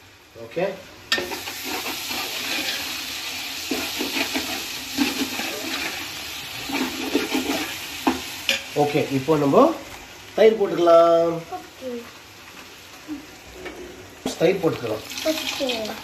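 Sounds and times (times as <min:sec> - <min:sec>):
sauce sizzling in a metal pot: 0:00.0 - 0:16.0
ladle scraping a pot: 0:03.7 - 0:07.9.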